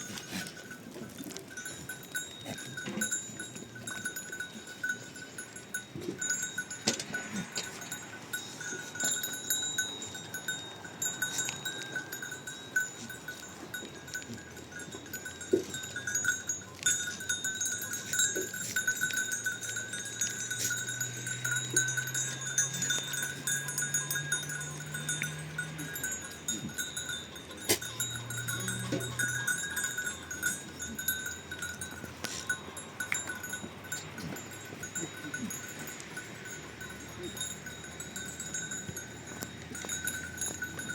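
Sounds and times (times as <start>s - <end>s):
sheep bells ringing: 0.0s - 40.9s.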